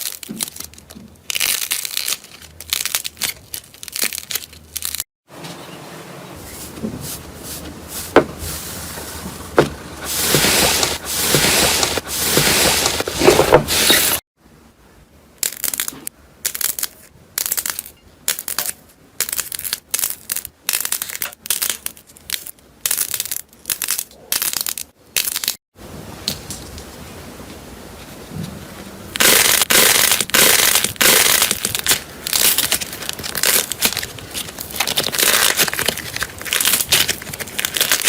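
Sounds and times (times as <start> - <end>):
slime crunching and crackling: 0.0 - 5.1, 29.2 - 38.0.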